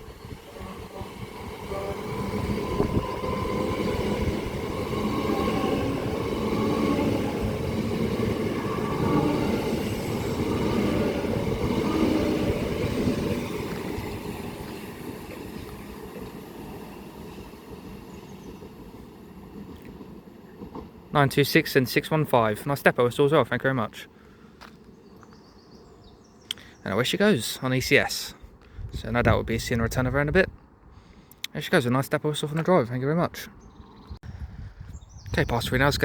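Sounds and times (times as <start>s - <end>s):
electric train passing: 0.0s - 22.9s.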